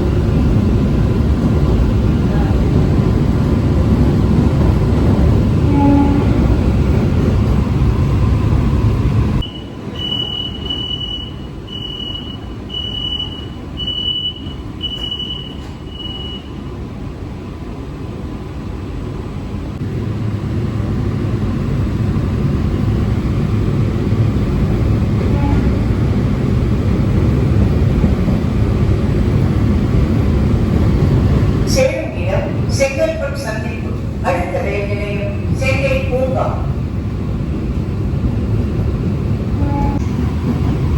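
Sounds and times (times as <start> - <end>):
train running rumble: 0.0 - 40.9
short high beeps: 9.4 - 16.5.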